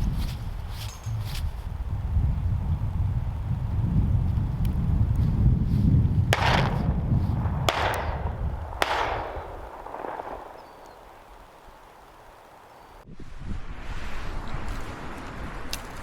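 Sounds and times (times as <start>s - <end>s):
wind rumble on microphone: 0.0s - 16.0s
shotgun shots echoing: 6.3s - 13.0s.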